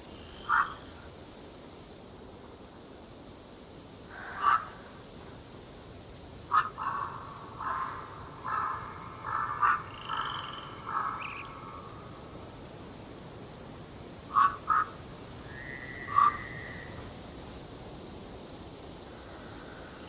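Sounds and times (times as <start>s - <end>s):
faint steady hiss: 0.0s - 20.0s
harsh rasping bird calls: 0.3s - 0.9s, 4.1s - 4.9s, 6.5s - 12.2s, 14.3s - 17.0s
high drawn-out bird whistle: 15.5s - 16.9s.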